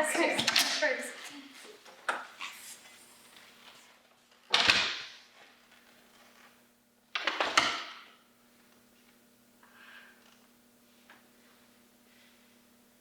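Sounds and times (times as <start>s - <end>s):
faint steady hum: 5.2s - 13.0s.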